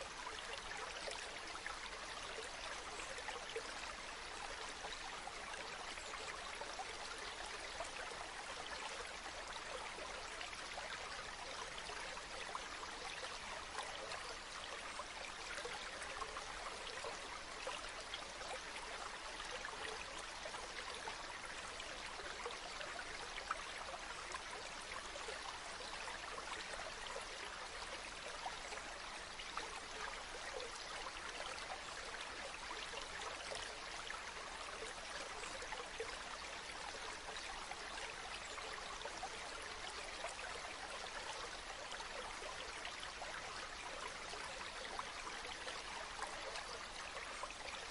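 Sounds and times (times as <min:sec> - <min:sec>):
water flowing over rocks: 0:00.0 - 0:47.9.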